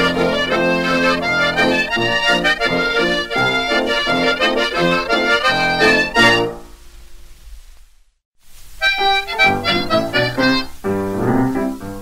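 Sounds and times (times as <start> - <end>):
accordion playing bouncy tune: 0.0 - 6.6, 8.8 - 10.8.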